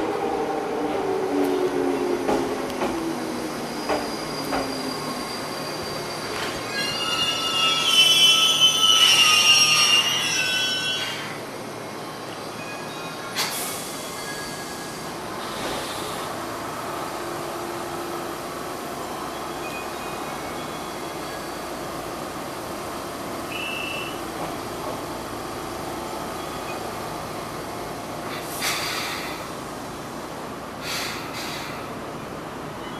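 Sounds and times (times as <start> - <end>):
train pulling in: 0.0 - 32.9
train brake hissing: 13.3 - 16.4, 28.2 - 29.6, 30.8 - 32.0.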